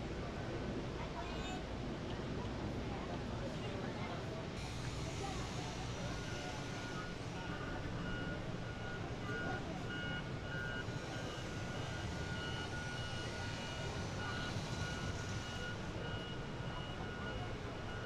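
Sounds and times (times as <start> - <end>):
reversing alarm beeping: 4.8 - 18.0.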